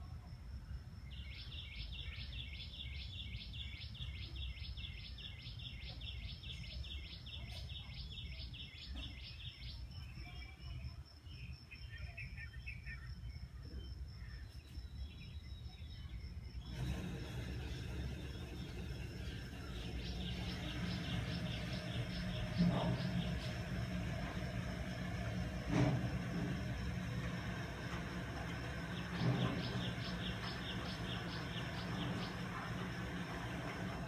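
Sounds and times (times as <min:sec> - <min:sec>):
bird chirping call: 0:01.1 - 0:10.6, 0:14.2 - 0:25.2, 0:28.5 - 0:33.2.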